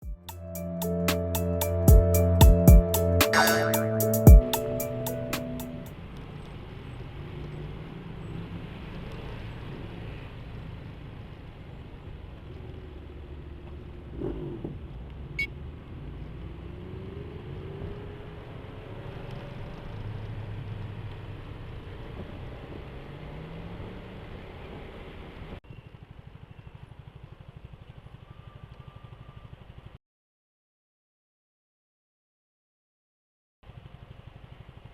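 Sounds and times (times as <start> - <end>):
scooter engine rumble: 25.7 - 30.0, 33.7 - 34.9.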